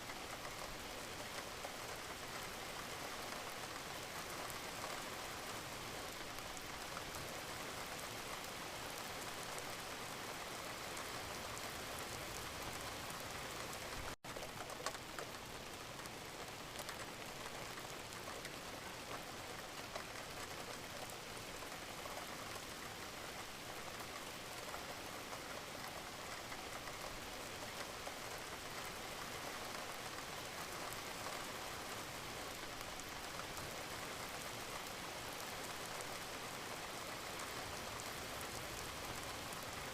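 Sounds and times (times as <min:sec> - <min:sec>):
steady rain: 0:00.0 - 0:39.9
raindrop ticks: 0:12.8 - 0:39.8.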